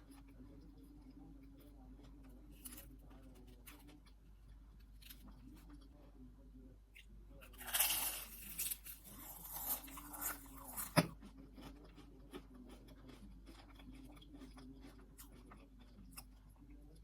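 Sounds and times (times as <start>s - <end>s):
biting into strawberry: 7.4s - 16.4s
wet chewing: 7.6s - 17.0s.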